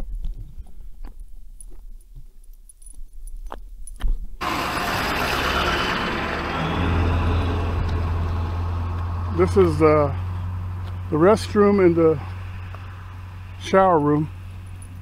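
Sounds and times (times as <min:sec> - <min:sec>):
vehicle engine humming: 0:04.4 - 0:15.0
light jingling: 0:14.6 - 0:15.0.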